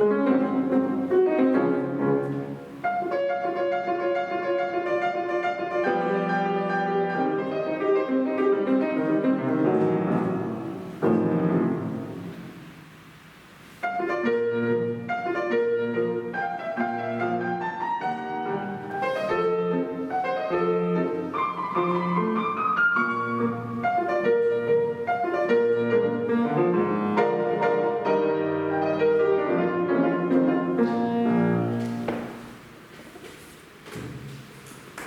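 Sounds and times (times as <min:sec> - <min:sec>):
solo classical piano: 0:00.0 - 0:35.0.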